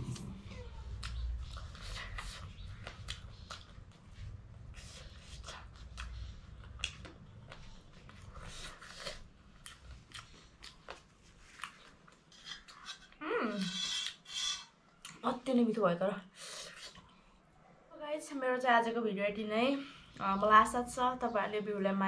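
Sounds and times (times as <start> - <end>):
person chewing food: 0.9 - 13.2.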